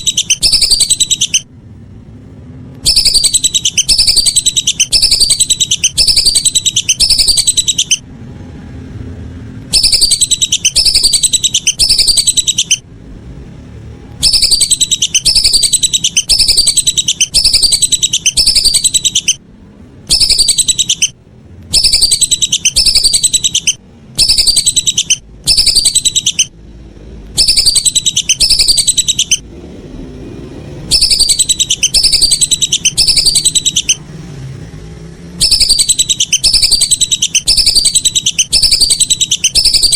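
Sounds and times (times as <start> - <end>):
whistling duck calls: 0.0 - 1.5, 2.8 - 8.0, 9.7 - 12.8, 14.2 - 19.4, 20.1 - 26.5, 27.4 - 29.4, 30.9 - 34.0, 35.4 - 39.9.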